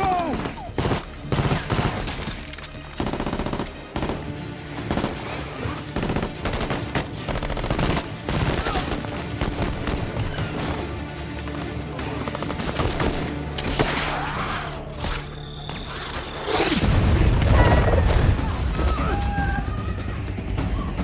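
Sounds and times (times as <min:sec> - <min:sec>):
film score music: 0:00.0 - 0:21.0
rapid automatic gunfire: 0:00.7 - 0:02.2, 0:03.0 - 0:10.1.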